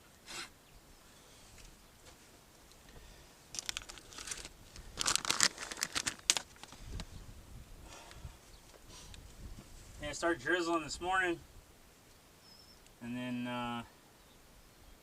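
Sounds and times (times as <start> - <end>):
crinkling rustles: 1.5 - 7.1.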